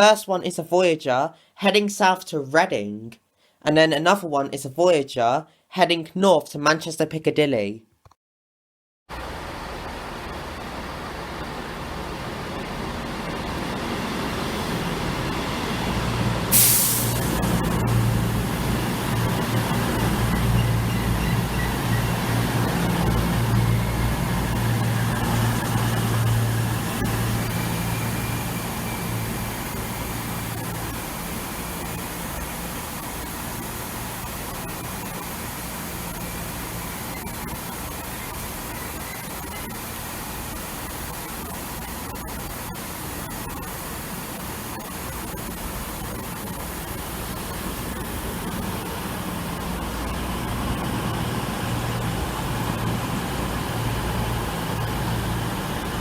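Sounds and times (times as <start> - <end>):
steady noise: 9.1 - 56.0
train diesel engines running: 9.2 - 56.0
short sharp hiss: 16.5 - 17.5.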